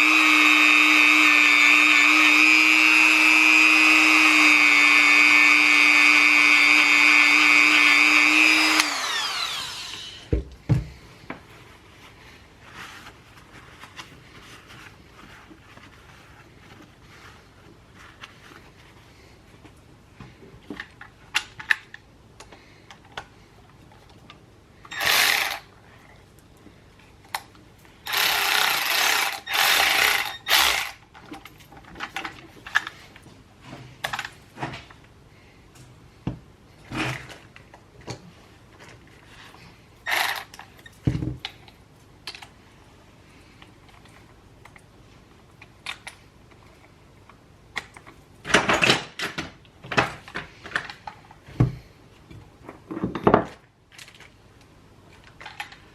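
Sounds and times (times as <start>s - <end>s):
rasping bursts of noise: 0.0s - 10.3s
tools and parts clicking: 24.9s - 25.7s, 27.3s - 33.0s, 40.0s - 42.5s, 45.6s - 46.2s.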